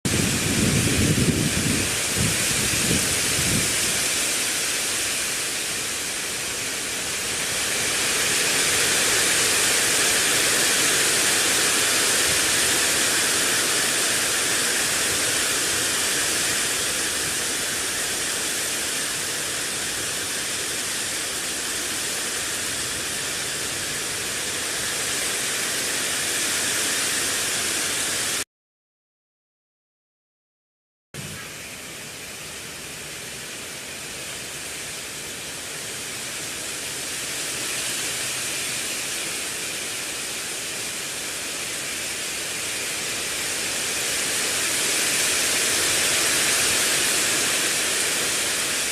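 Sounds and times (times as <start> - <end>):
wind rushing: 0.1 - 4.2.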